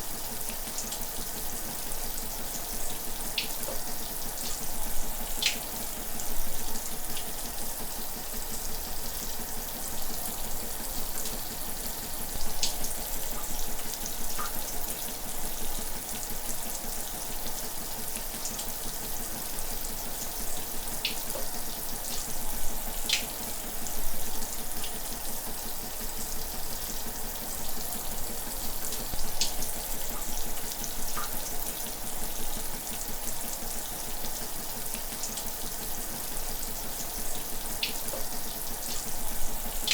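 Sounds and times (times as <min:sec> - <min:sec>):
shower water spray: 0:38.8 - 0:39.9.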